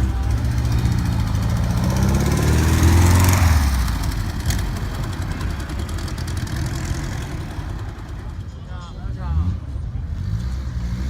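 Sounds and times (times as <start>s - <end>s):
car engine pulling away: 0.0s - 8.6s, 9.2s - 11.0s.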